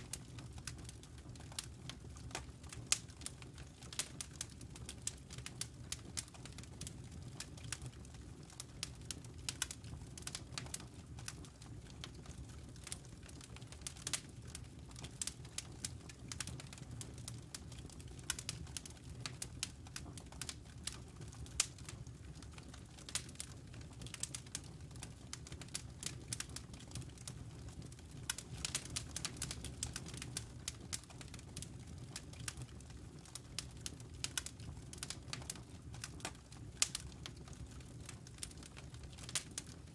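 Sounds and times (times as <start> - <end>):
campfire crackling and popping: 0.0 - 39.9
low rumble of flame: 0.0 - 39.9.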